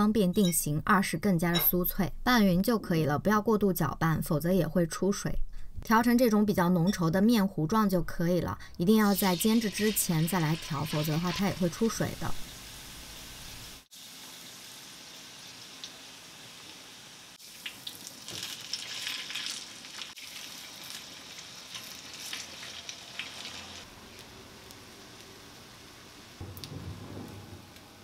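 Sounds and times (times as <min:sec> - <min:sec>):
potato pancakes sizzling in oil: 0:09.0 - 0:26.4.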